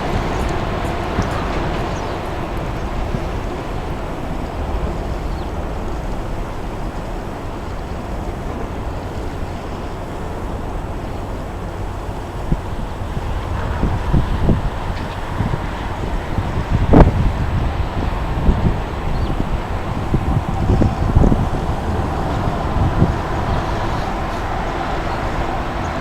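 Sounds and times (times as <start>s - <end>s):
wind rushing over microphone: 0.0s - 26.0s
low rumble: 12.5s - 26.0s.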